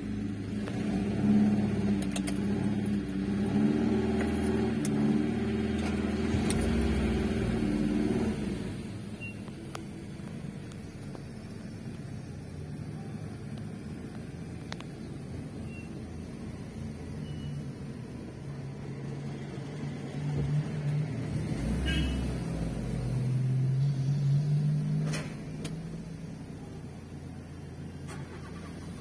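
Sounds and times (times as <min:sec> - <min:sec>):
car engine running unevenly: 0:00.0 - 0:21.3.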